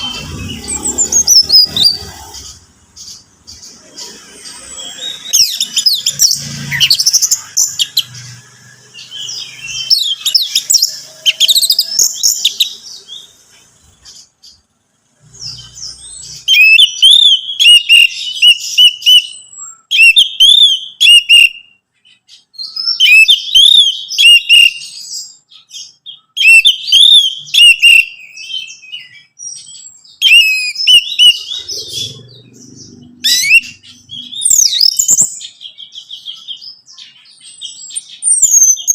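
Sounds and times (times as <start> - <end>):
thrush singing whistled phrases: 9.0 - 12.8, 15.5 - 21.8, 22.6 - 32.2, 33.2 - 38.9.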